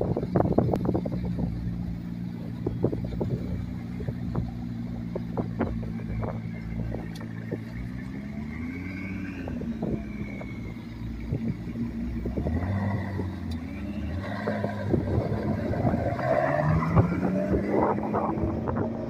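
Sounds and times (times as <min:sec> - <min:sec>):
car engine idling and accelerating: 0:00.0 - 0:19.0.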